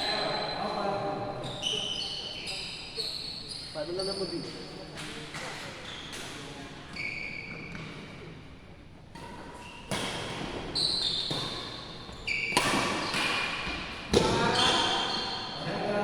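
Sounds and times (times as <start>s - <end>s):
shoes squeaking on court floor: 0.0s - 8.3s, 9.2s - 15.7s
racket hitting shuttlecock: 9.2s - 11.9s, 12.5s - 15.3s.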